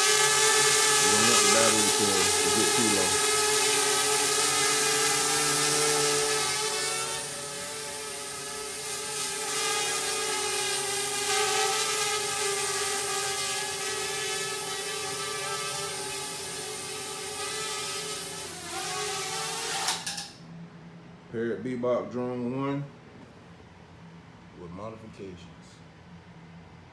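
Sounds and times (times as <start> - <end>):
quadcopter propellers whining: 0.0 - 20.2.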